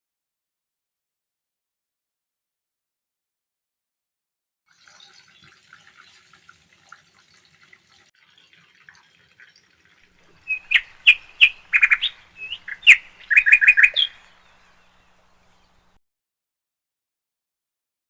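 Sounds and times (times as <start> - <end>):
birds chirping: 9.5 - 16.0.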